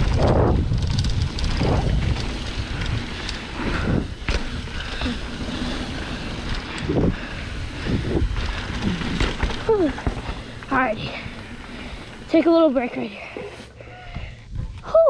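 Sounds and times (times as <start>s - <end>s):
wind buffeting microphone: 0.0s - 13.3s
knocks and rattles over bumps: 0.0s - 13.5s
low rumble of bike tyres: 0.0s - 15.0s.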